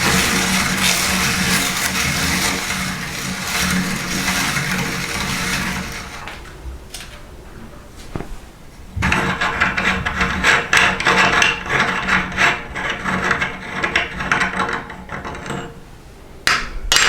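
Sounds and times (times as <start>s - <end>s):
meat grinder motor hum: 0.0s - 6.4s
dry food crunching: 0.0s - 7.2s.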